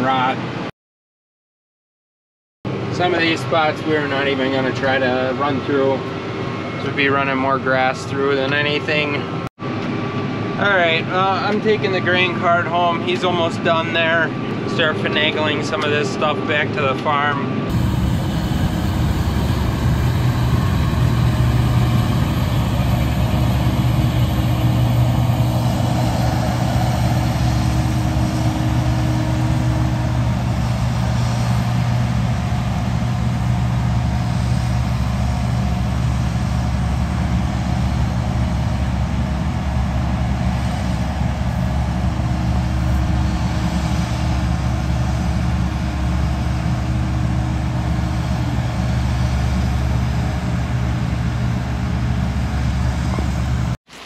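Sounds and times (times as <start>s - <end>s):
tractor engine running: 17.7s - 53.8s.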